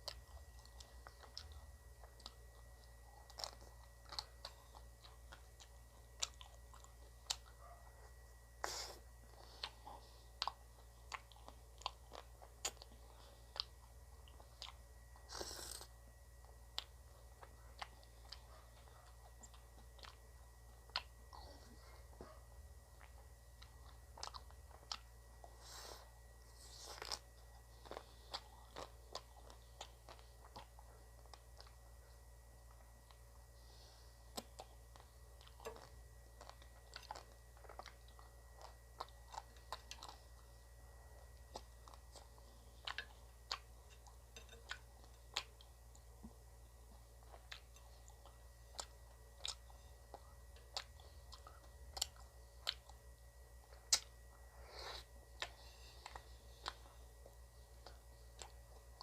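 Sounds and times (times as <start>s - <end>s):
faint steady hum: 0.0s - 59.0s
crunching frozen ice cream: 8.6s - 15.9s.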